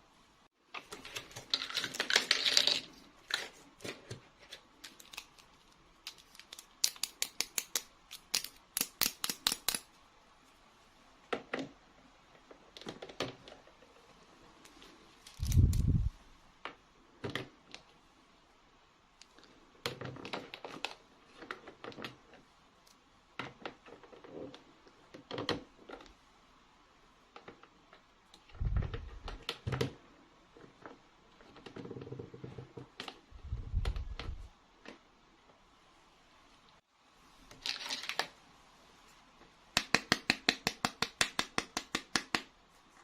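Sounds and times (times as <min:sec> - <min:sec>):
plastic toy pieces clicking: 0:06.1 - 0:09.9.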